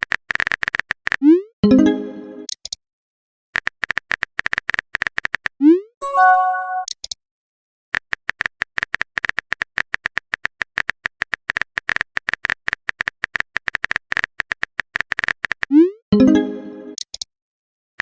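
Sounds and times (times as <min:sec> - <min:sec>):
message notification chime: 0:01.6 - 0:02.5, 0:06.0 - 0:06.9, 0:16.2 - 0:17.0.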